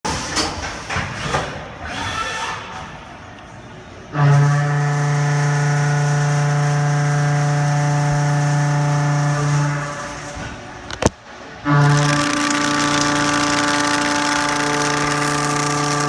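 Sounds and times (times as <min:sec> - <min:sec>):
milling machine cutting steel: 0:11.8 - 0:16.0.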